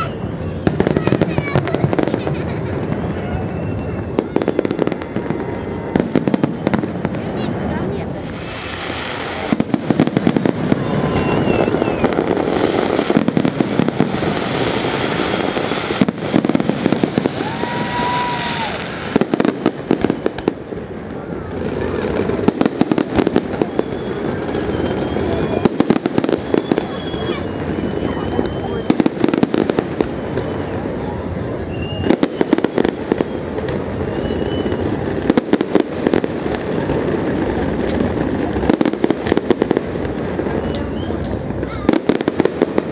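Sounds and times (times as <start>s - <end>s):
whistle-like tone: 0.0s - 0.8s, 3.0s - 5.9s, 10.8s - 12.2s, 23.5s - 29.1s, 31.6s - 35.0s, 40.2s - 41.3s
continuous rumble: 0.0s - 42.9s
fireworks crackling and banging: 0.0s - 42.9s.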